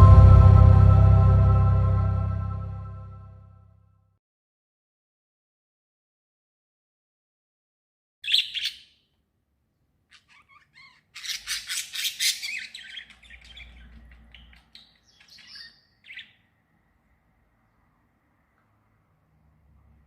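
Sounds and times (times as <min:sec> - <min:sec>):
faint steady high tone: 0:00.0 - 0:03.5
small songbirds chirping: 0:08.2 - 0:09.0, 0:10.1 - 0:16.6.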